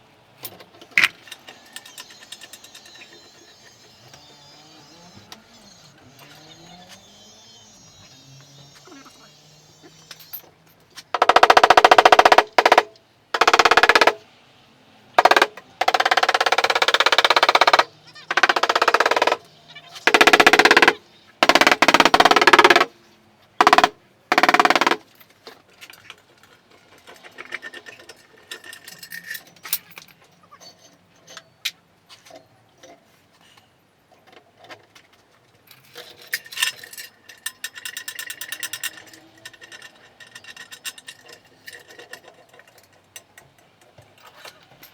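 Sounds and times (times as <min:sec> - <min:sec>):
power tool rattling: 0:11.2 - 0:14.2, 0:15.2 - 0:22.9, 0:23.6 - 0:25.0.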